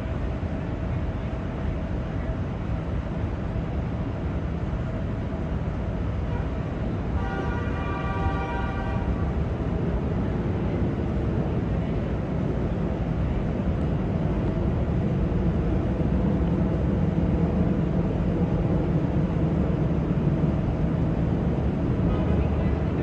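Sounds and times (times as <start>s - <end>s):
low rumbling background noise: 0.0s - 23.0s
horn-like tone: 7.2s - 9.3s.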